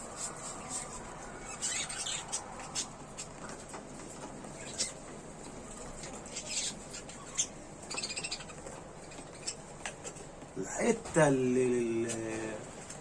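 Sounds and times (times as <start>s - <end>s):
budgerigars chirping: 0.6s - 3.6s, 4.5s - 10.2s.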